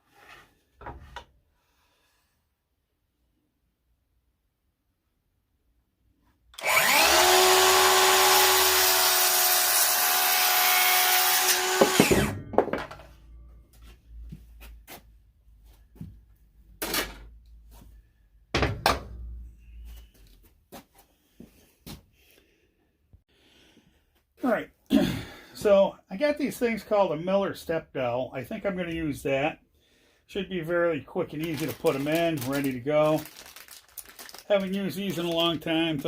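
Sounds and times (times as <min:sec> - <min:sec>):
power saw cutting wood: 0:06.6 - 0:12.4.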